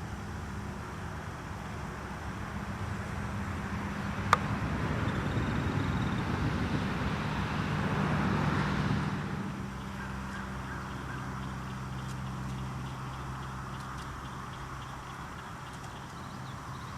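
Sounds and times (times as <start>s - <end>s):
steady low hum: 0.0s - 16.9s
geese calling: 9.7s - 16.9s.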